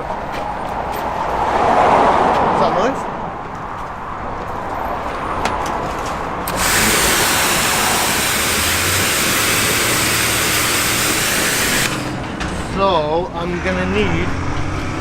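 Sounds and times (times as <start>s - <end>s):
water jet spray hiss: 6.5s - 12.2s
pressure washer motor humming: 6.5s - 12.5s.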